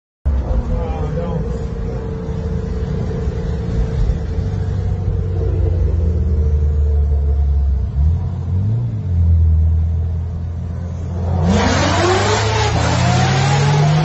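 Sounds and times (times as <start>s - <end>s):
car engine revving: 0.3s - 14.0s.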